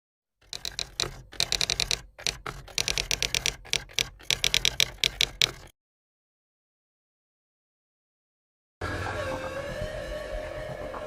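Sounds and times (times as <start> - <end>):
rapid ringing clicks: 0.4 - 5.7.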